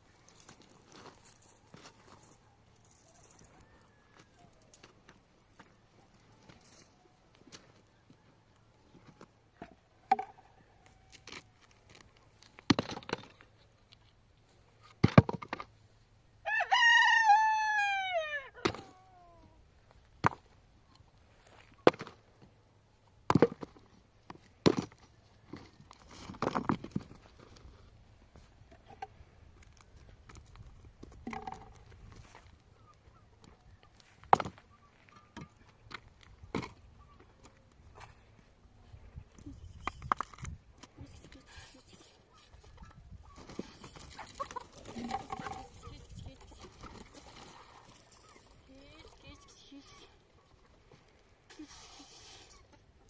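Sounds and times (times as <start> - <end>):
rooster crowing: 3.3 - 4.6, 16.4 - 18.7.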